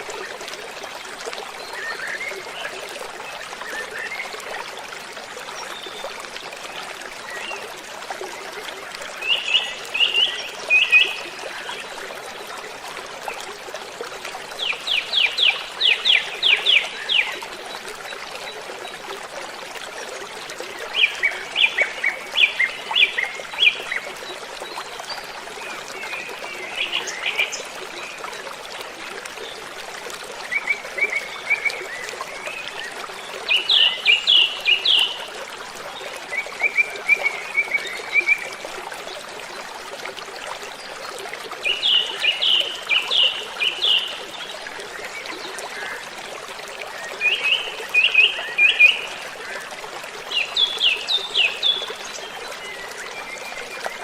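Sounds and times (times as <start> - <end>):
songbirds singing: 41.6 - 44.5.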